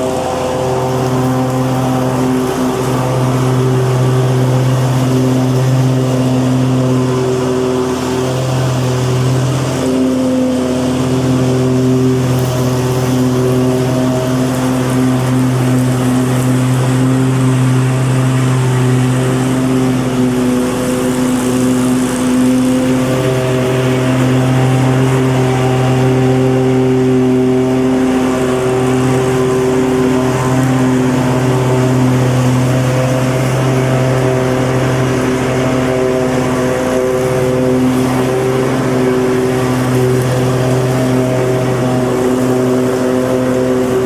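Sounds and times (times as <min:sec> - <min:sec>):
lawn mower engine running: 0:00.0 - 0:44.0.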